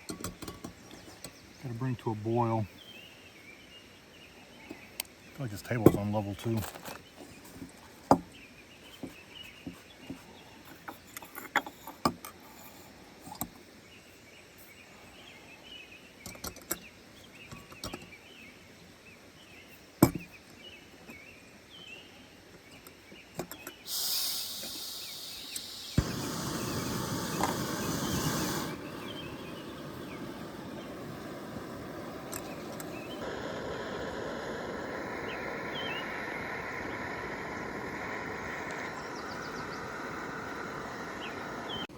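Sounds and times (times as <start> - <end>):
gas burner roaring: 23.8 - 41.9
gas hissing: 23.8 - 41.9
stove igniter click: 25.4 - 30.1, 32.2 - 33.2.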